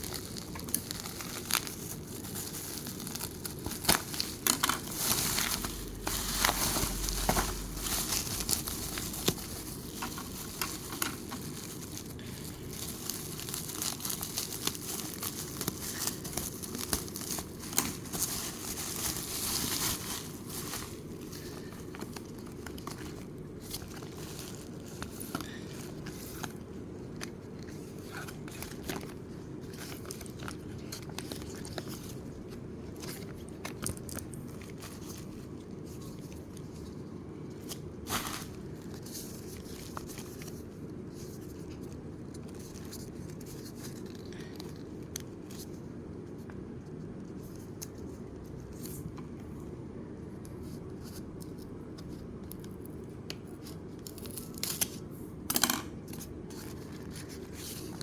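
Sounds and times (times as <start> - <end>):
packaging rustling and tearing: 0.0 - 45.8
low background hum: 0.0 - 58.0.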